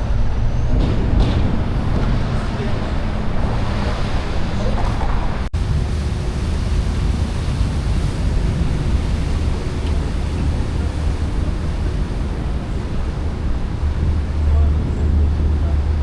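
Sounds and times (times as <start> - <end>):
road traffic rumble: 0.0 - 16.0
wind buffeting microphone: 0.0 - 16.0.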